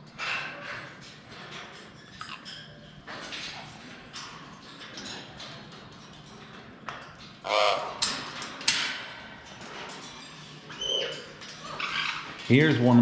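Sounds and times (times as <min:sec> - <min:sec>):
parrot screech: 0:07.4 - 0:08.0, 0:10.7 - 0:12.4
parrot squawk: 0:07.4 - 0:08.0, 0:10.7 - 0:12.4.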